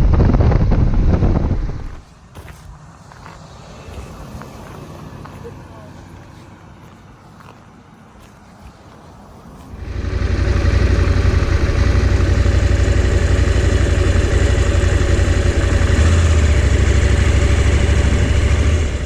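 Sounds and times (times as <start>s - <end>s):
motorcycle engine running: 0.0s - 2.0s, 9.7s - 19.0s.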